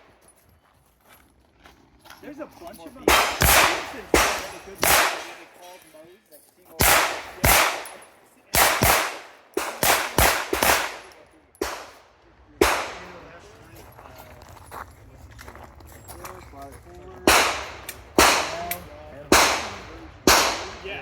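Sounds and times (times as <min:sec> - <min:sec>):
pistol shots with echo: 0:03.0 - 0:05.6, 0:06.8 - 0:13.3, 0:17.2 - 0:21.0.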